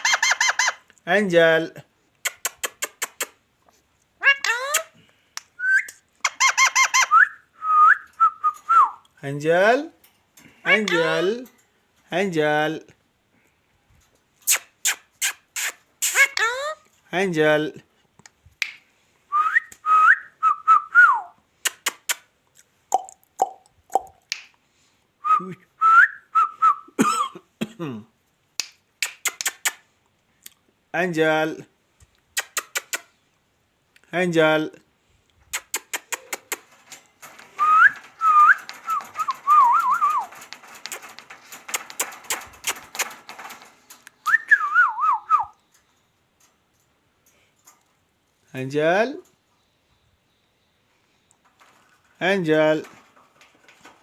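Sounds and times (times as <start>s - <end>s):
whistled tune: 5.6s - 6.0s, 7.1s - 9.0s, 19.3s - 21.3s, 37.6s - 40.3s, 44.2s - 45.6s
sharp clicks: 28.6s - 29.8s, 32.4s - 33.1s, 35.5s - 44.4s.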